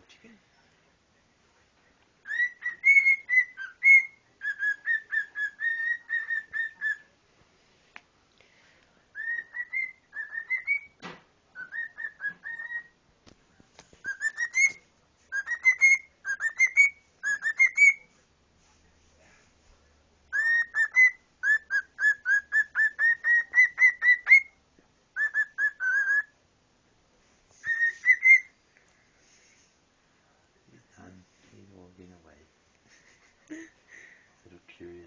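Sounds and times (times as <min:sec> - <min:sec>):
cockatiel whistling: 0:02.2 - 0:07.1, 0:09.2 - 0:11.0, 0:11.6 - 0:13.0, 0:14.0 - 0:18.1, 0:20.3 - 0:24.6, 0:25.2 - 0:26.4, 0:27.6 - 0:28.5.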